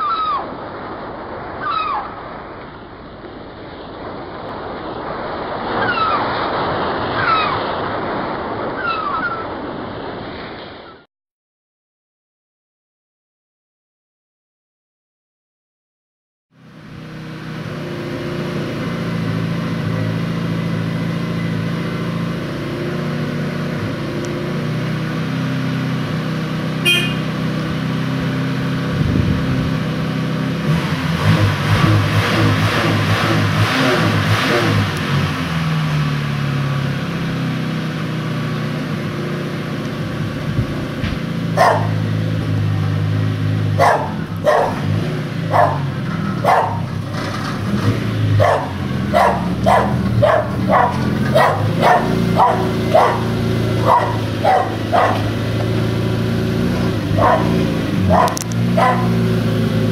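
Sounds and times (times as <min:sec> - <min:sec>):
car engine running and revving: 0:16.6 - 0:59.9
exhaust blowing through a hole: 0:17.0 - 0:59.9
dog barking: 0:41.6 - 0:42.0, 0:43.8 - 0:44.9, 0:45.5 - 0:46.9, 0:48.4 - 0:55.4, 0:57.1 - 0:59.2.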